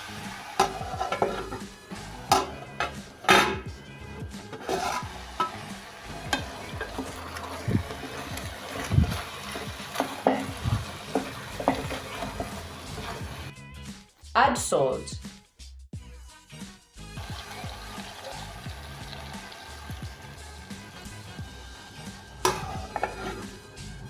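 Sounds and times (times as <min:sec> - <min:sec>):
food sizzling in oil: 0:00.0 - 0:13.5, 0:17.2 - 0:24.0
utensil scraping metal pot: 0:00.0 - 0:13.5, 0:17.3 - 0:24.0.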